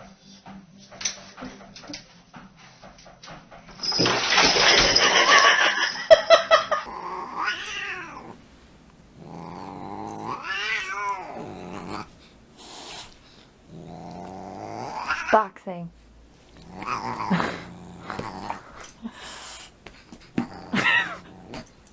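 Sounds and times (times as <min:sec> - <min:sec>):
cat yowling: 0:06.9 - 0:08.4, 0:10.1 - 0:12.1, 0:14.9 - 0:15.4.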